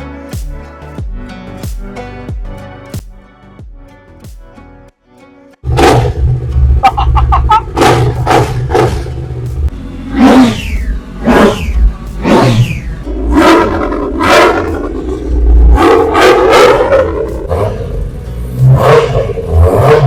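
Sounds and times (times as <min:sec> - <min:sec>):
motorcycle engine revving: 0:05.6 - 0:20.0.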